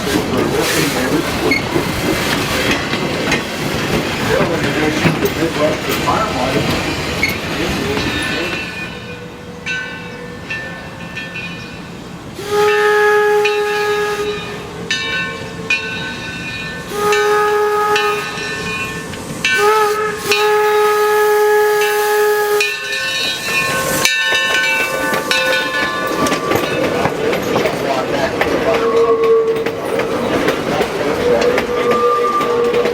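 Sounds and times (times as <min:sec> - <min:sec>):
train hissing and running: 0:00.0 - 0:32.9
steam whistle blasts: 0:12.4 - 0:15.8, 0:16.8 - 0:26.9, 0:28.7 - 0:29.7, 0:31.2 - 0:32.9.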